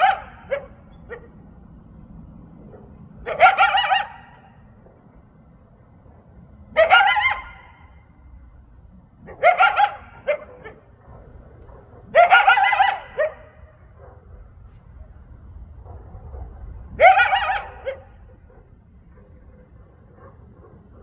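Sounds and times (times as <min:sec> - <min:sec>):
coyote yips and howls: 0:00.0 - 0:01.4, 0:03.2 - 0:04.4, 0:06.8 - 0:07.8, 0:09.3 - 0:13.7, 0:17.0 - 0:18.4.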